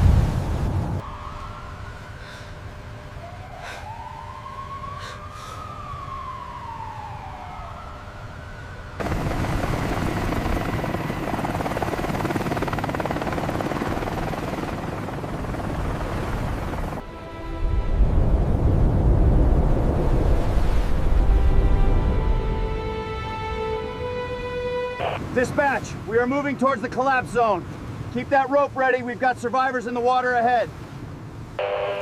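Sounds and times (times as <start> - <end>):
siren wailing: 1.0 - 17.4, 21.1 - 25.4, 31.6 - 32.0.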